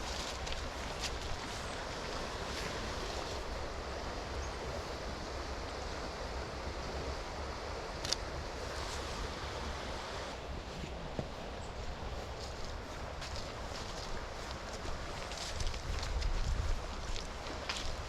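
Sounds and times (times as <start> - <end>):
river water flowing: 0.0 - 18.0
wind in trees: 0.0 - 18.0
rain: 13.2 - 18.0.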